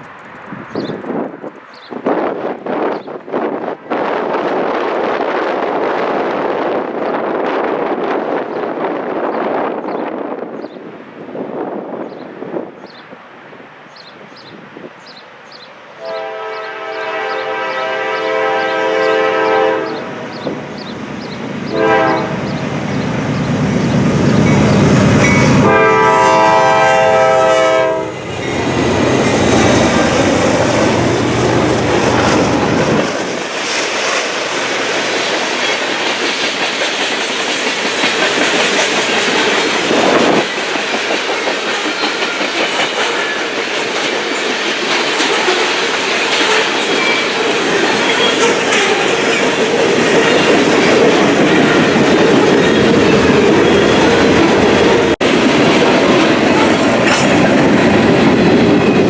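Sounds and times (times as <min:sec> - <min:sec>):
train horn blowing: 0:16.0 - 0:20.6, 0:21.7 - 0:22.8, 0:25.2 - 0:28.2
locomotive engine rumbling: 0:16.0 - 0:59.0
freight cars clattering on rails: 0:28.3 - 0:59.0.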